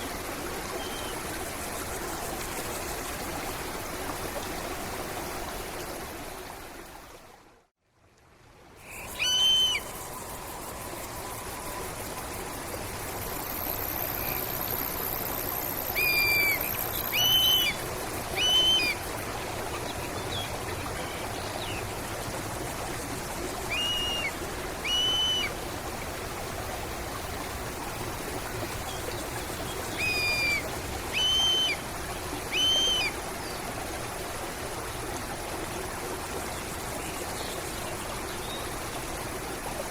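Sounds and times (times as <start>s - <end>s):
stream water running: 0.0s - 39.9s
bird calling: 8.8s - 10.0s, 15.9s - 19.0s, 23.7s - 25.5s, 29.6s - 31.8s, 32.5s - 33.2s.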